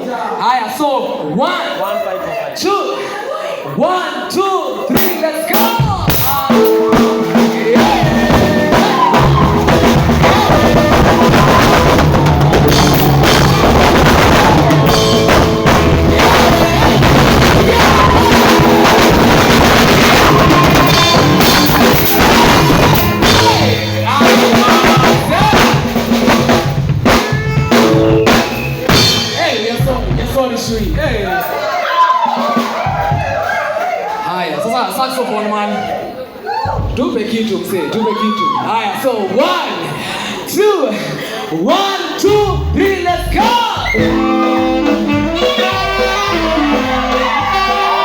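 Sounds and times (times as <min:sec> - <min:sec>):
live band playing: 0:04.8 - 0:34.2, 0:42.1 - 0:48.0
drum kit hits: 0:04.9 - 0:31.3, 0:42.3 - 0:48.0
bass notes: 0:05.8 - 0:31.4, 0:42.3 - 0:48.0.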